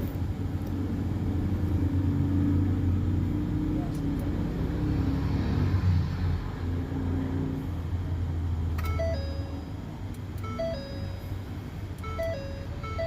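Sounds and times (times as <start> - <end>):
two-note electronic chime: 10.5 - 11.4, 12.0 - 13.0.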